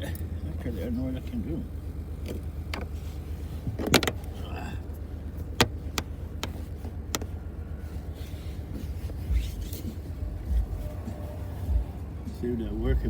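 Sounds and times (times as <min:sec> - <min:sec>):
car rumble: 0:00.0 - 0:13.0
clicks and knocks of device: 0:03.8 - 0:04.2, 0:05.6 - 0:07.3.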